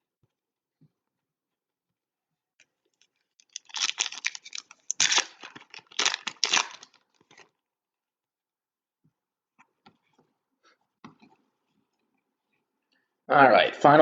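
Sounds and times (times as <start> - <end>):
card packaging tearing and crinkling: 3.4 - 7.5.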